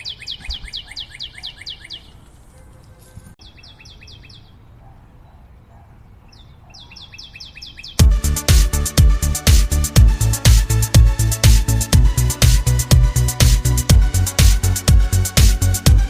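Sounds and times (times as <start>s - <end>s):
bird chirping falling notes: 0.0s - 2.3s
electronic dance music: 8.0s - 16.0s.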